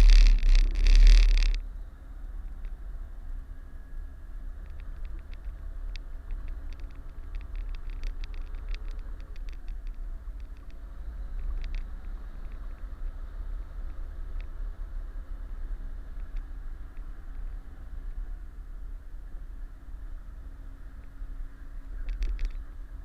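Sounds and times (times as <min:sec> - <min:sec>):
short clicks and ticks: 0:00.0 - 0:01.6.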